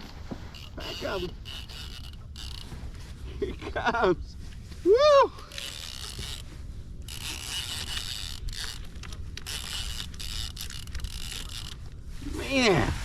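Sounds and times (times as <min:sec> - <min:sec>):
fishing reel gears grinding: 0:00.5 - 0:03.0, 0:05.4 - 0:12.8.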